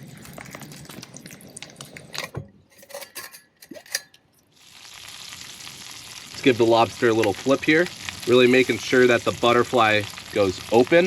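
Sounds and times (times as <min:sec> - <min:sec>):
utensils and dishes clinking: 0:02.2 - 0:04.3
food sizzling in a pan: 0:04.5 - 0:11.0.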